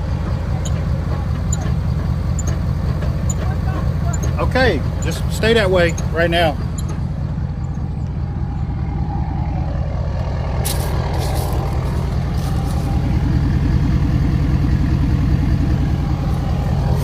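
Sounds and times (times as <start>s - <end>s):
pickup engine rumble: 0.0s - 17.0s
sharp high chirps from wheel: 1.5s - 3.4s, 4.0s - 7.0s.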